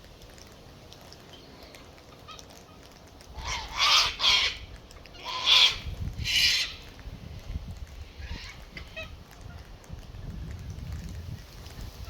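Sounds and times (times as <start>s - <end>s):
poultry harsh calls: 3.4s - 4.6s, 5.2s - 6.8s
wind rumble on microphone: 5.6s - 12.0s.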